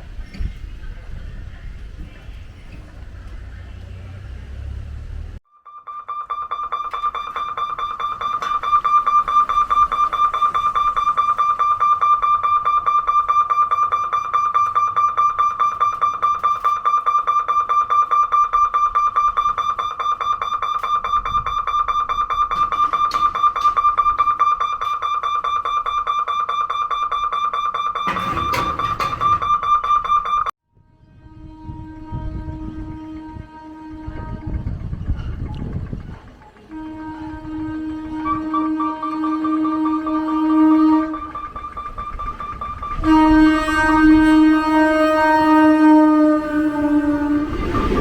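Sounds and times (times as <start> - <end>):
electric warning bell ringing: 5.5 - 30.5, 38.0 - 48.0.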